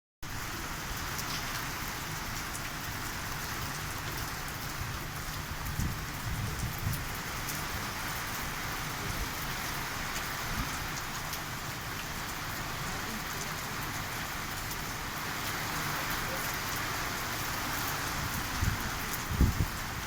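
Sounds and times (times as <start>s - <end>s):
heavy rain hissing: 0.3s - 20.0s
wind gusts rumbling: 4.9s - 7.3s, 18.0s - 20.0s.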